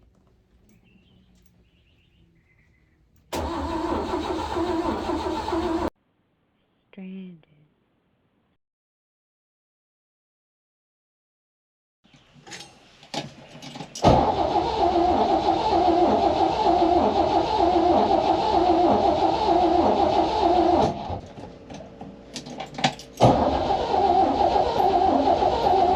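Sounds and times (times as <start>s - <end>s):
engine cranking by starter: 3.3s - 5.9s, 13.1s - 25.9s.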